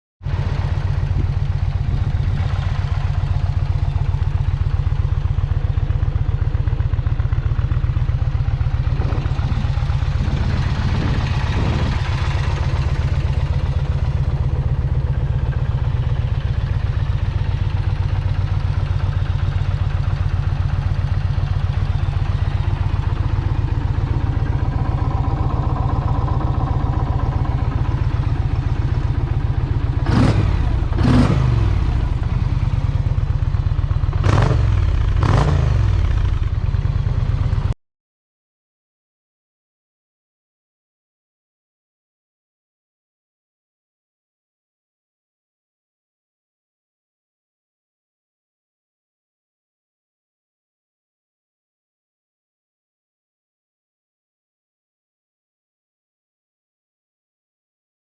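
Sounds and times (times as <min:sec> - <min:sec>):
motorcycle engine idling: 0:00.2 - 0:37.8.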